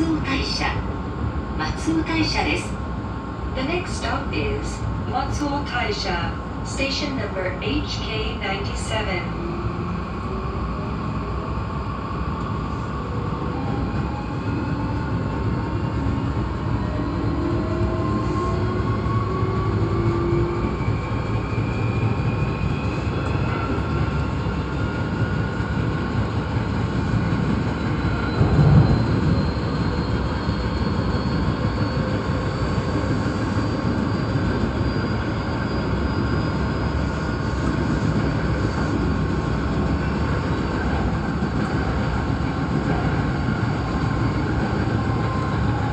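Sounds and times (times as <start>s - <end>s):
wheels rumbling on rail: 9.5s - 45.9s.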